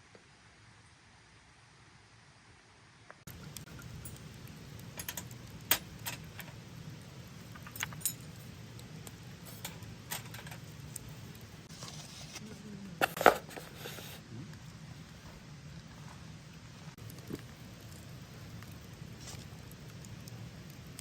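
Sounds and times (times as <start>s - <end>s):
low steady hum: 3.3s - 21.0s.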